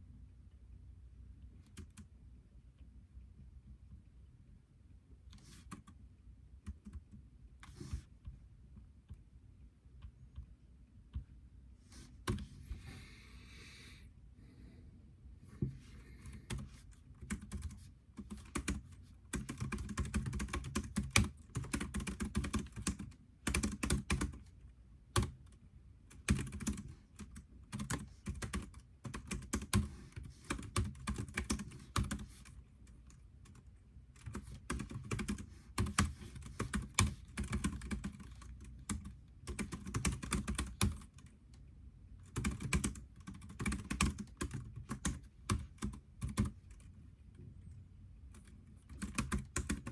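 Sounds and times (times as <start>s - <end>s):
typing on computer keyboard: 6.6s - 7.8s, 16.5s - 24.5s, 25.1s - 33.6s, 34.2s - 41.3s, 42.3s - 46.9s, 48.4s - 49.9s.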